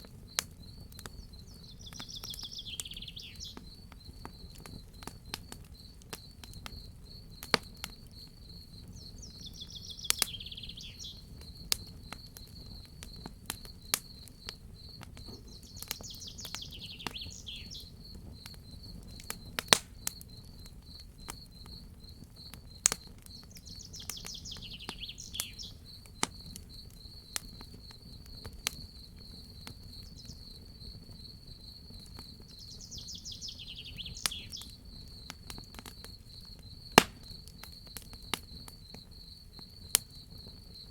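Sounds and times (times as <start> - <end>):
crickets trilling: 0.0 - 40.9
wood fire crackling and popping: 0.0 - 40.9
bird singing falling phrase: 1.5 - 3.6, 9.0 - 11.2, 15.5 - 17.9, 23.7 - 25.8, 32.6 - 34.7.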